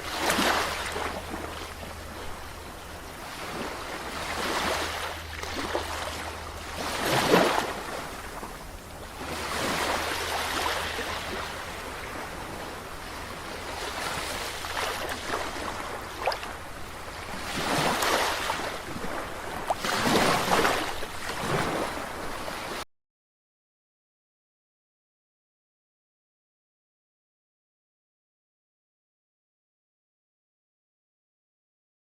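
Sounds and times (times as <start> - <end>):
ocean waves washing onto shore: 0.0 - 22.8.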